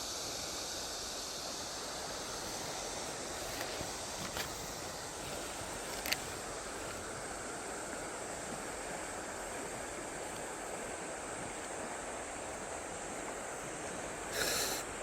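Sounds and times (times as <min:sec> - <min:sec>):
sharp hiss burst: 0:14.3 - 0:15.0.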